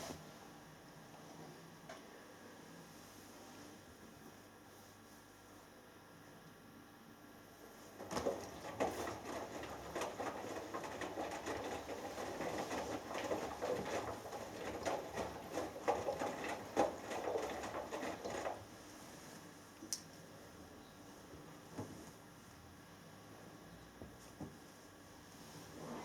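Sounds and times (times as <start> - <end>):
laundry tumbling and water sloshing: 7.9 - 19.2.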